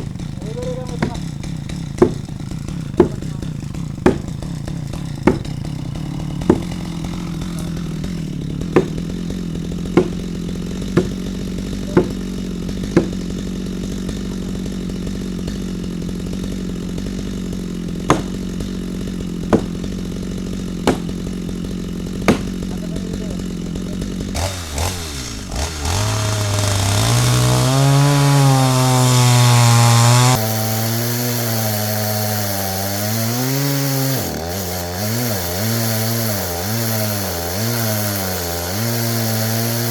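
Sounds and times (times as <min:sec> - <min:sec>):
chainsaw cutting wood: 0:00.0 - 0:39.9
chainsaw running: 0:00.0 - 0:39.9
sharp knocks: 0:00.8 - 0:09.2, 0:09.8 - 0:11.2, 0:11.9 - 0:12.2, 0:12.8 - 0:13.4, 0:18.0 - 0:18.7, 0:19.4 - 0:20.0, 0:20.8 - 0:21.3, 0:22.2 - 0:22.6.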